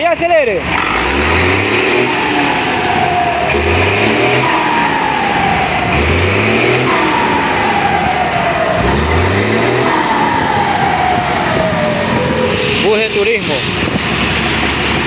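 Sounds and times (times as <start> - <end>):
diesel engine revving: 0.0 - 15.0.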